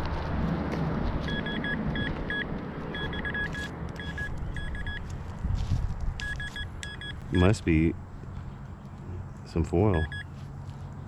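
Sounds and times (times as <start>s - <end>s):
metal detector beeps: 1.3s - 5.0s, 6.2s - 7.5s, 9.9s - 10.3s.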